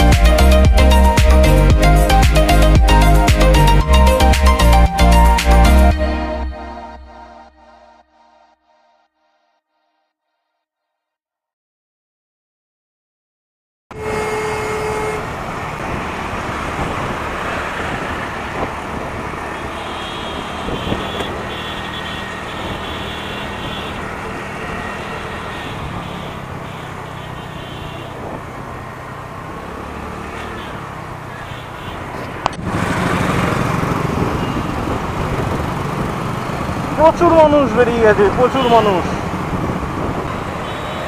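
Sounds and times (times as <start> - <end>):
surrounding traffic: 0.0 - 8.6, 13.9 - 41.0
motorcycle engine: 13.9 - 41.0.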